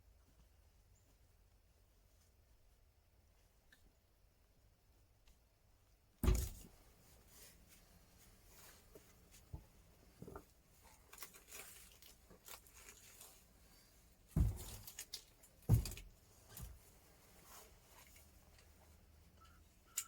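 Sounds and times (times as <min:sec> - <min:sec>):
dull thumps: 0:06.2 - 0:06.8, 0:14.3 - 0:14.9, 0:15.6 - 0:16.8
rustling from handling: 0:10.2 - 0:19.0
small knocks: 0:14.4 - 0:16.8.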